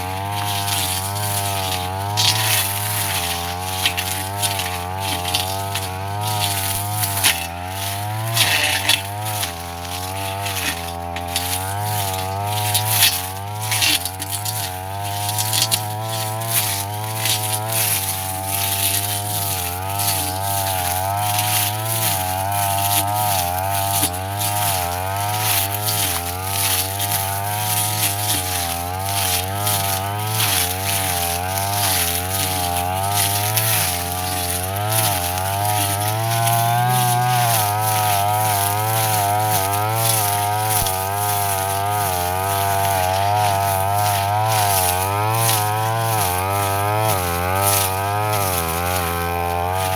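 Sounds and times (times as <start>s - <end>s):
blade cutting grass clicks: 0.0s - 49.9s
brush cutter engine running: 0.0s - 49.9s.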